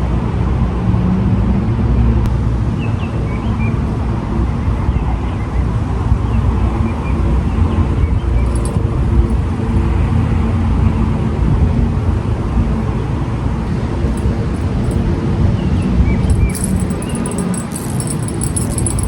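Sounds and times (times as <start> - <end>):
faint metallic jingling: 8.3 - 9.6, 14.1 - 15.0, 16.2 - 19.0.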